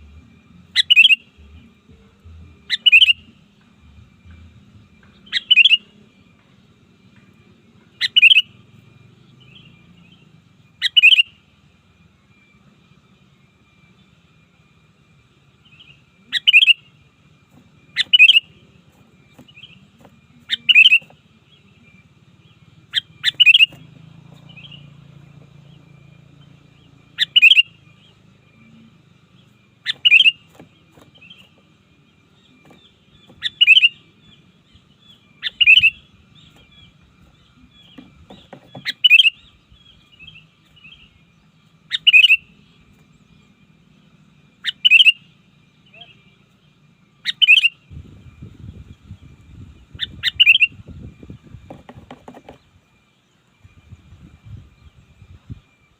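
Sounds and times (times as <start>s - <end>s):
faint bird chirps: 0.0s - 55.9s
bird calling loudly: 0.7s - 1.6s, 2.6s - 3.5s, 5.0s - 6.0s, 8.0s - 8.6s, 10.8s - 11.4s, 16.3s - 16.9s, 17.9s - 18.6s, 20.4s - 21.2s, 22.8s - 28.2s, 29.8s - 31.7s, 32.6s - 42.8s, 44.5s - 46.6s, 47.2s - 47.9s, 49.9s - 52.6s.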